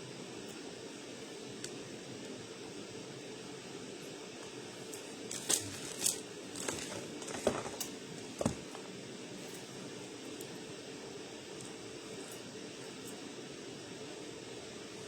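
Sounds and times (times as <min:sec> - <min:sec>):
crinkling and rustling handling: 0:04.9 - 0:10.6.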